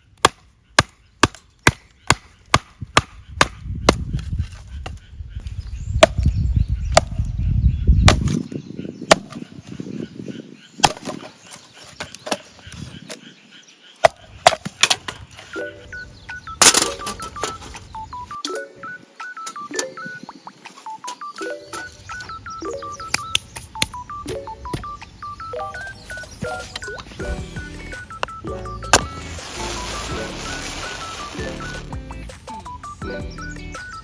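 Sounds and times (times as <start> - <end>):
beeping tune: 15.5 - 34.0.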